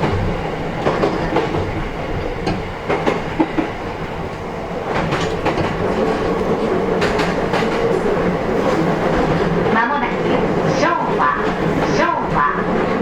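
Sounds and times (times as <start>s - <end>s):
train running rumble: 0.0s - 13.0s
wheels clicking over rail joints: 0.0s - 13.0s.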